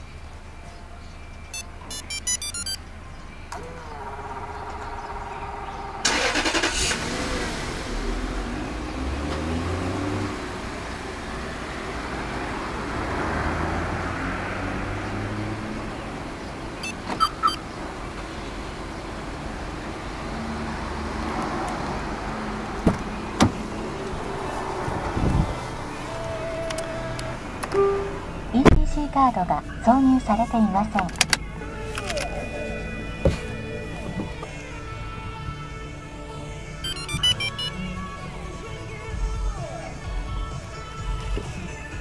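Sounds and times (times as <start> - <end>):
car engine cranking and idling: 0.0 - 42.0
short electronic beeps: 1.5 - 2.8, 16.8 - 17.6, 36.8 - 37.8.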